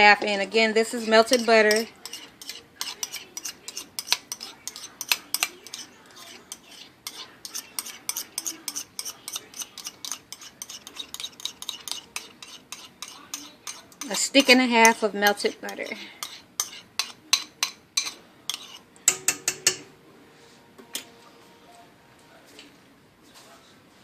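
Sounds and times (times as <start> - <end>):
utensil scraping a dish: 1.0 - 18.9.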